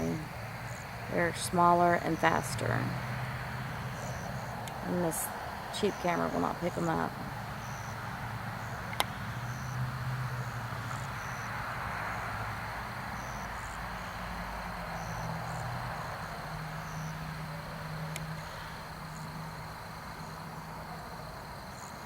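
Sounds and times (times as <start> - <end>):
night insects chirping: 0.0 - 22.0
steady hiss: 0.0 - 22.0.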